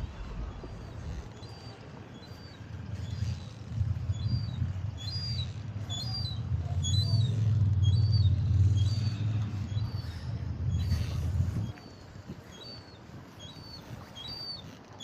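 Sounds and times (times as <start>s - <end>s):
small bird chirping: 0.1s - 15.0s
low rumble: 3.5s - 11.8s.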